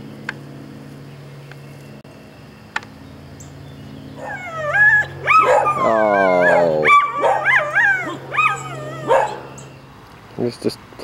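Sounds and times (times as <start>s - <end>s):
pet animal whining cries: 4.2s - 9.8s.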